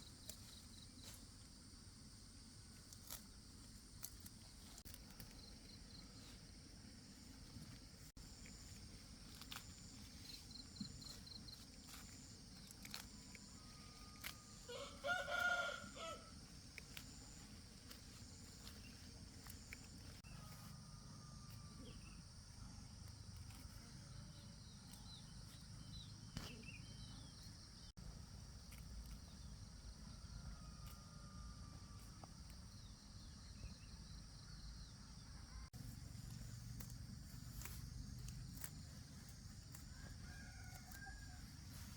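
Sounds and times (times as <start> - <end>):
rooster crowing: 13.7 - 16.4, 30.2 - 32.0, 39.8 - 41.7.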